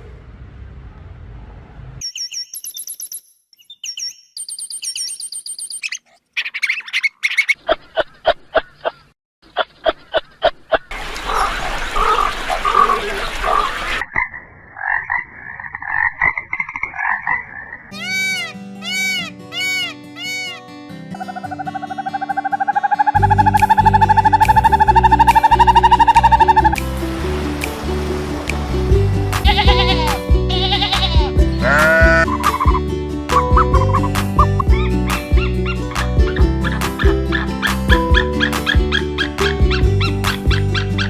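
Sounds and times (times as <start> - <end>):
melodic music: 23.2 - 41.0
animal trill: 29.4 - 32.8
high animal chirping: 30.6 - 32.7.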